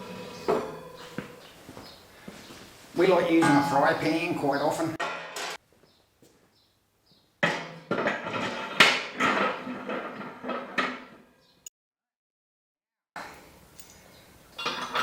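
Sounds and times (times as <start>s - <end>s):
metal clanking: 0.0s - 1.4s, 3.2s - 4.1s, 5.0s - 5.6s.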